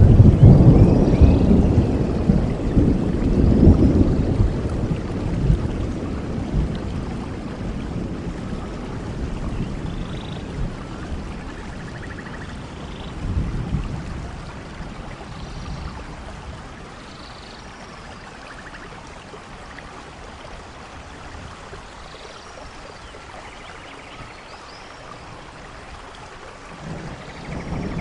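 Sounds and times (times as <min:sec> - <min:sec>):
low thunder rumble: 0:00.0 - 0:16.9, 0:26.7 - 0:28.0
soft rain falling: 0:00.0 - 0:28.0.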